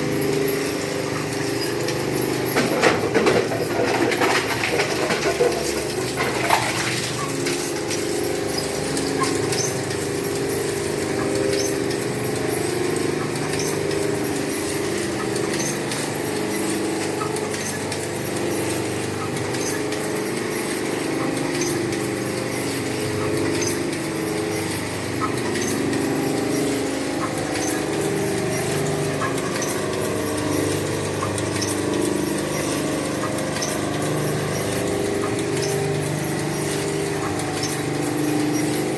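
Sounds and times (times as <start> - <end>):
metal shredder machine drone: 0.0 - 13.5
small clattering impacts: 2.5 - 8.0.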